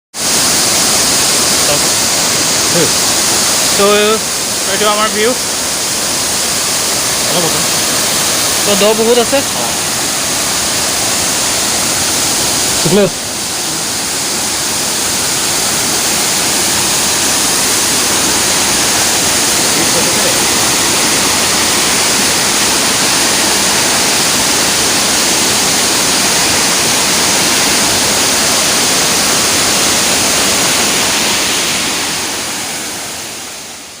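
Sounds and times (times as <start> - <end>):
waterfall rushing: 0.2 - 34.0.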